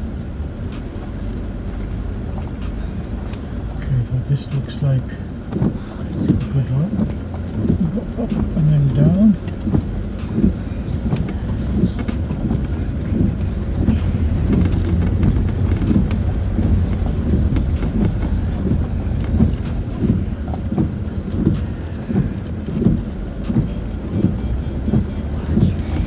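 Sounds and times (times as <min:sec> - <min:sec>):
engine and drivetrain drone: 0:00.0 - 0:26.0
suspension knocks and clunks: 0:00.0 - 0:26.0.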